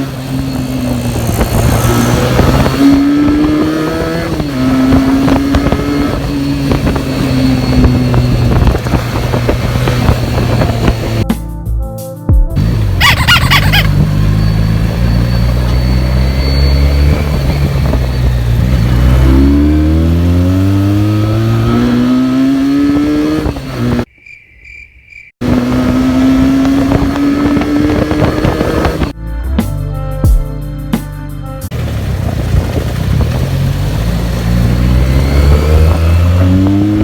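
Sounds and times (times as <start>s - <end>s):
motorcycle engine accelerating: 0.0s - 11.2s, 12.6s - 24.1s, 25.4s - 29.2s, 31.7s - 37.0s.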